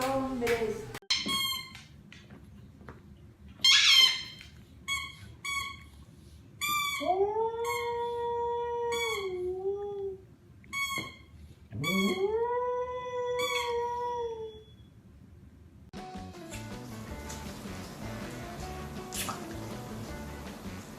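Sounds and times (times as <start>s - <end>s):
dog yelping: 3.6s - 4.4s.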